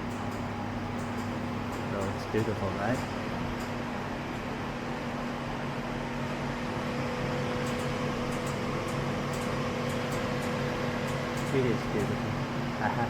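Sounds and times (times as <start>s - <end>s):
low electrical drone: 0.0s - 13.0s
ventilation hum and hiss: 0.0s - 13.0s.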